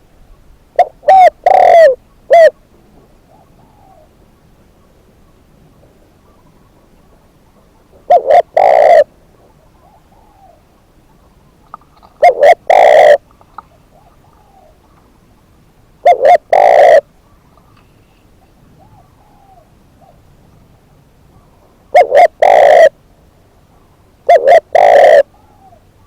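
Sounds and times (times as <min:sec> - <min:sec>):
faint birdcalls: 0:00.0 - 0:26.0
dove cooing: 0:00.8 - 0:02.6, 0:03.2 - 0:04.2, 0:06.2 - 0:15.1, 0:16.0 - 0:17.8, 0:18.4 - 0:20.3, 0:21.3 - 0:23.0, 0:23.7 - 0:26.0.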